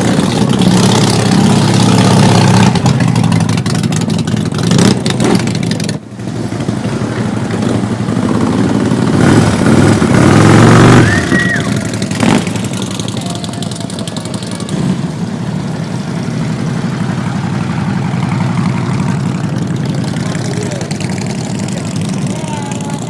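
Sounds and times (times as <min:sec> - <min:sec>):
motorcycle engines revving: 0:00.0 - 0:23.0.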